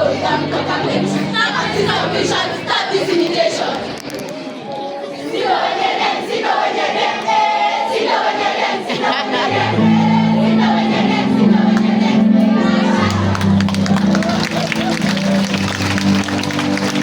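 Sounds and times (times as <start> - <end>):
group of voices singing: 0.0 - 15.7
low bass notes: 9.6 - 17.0.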